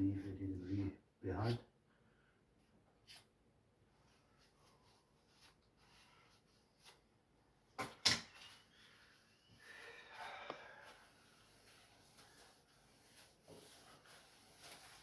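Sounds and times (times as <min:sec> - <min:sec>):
rustling: 0:10.8 - 0:15.0.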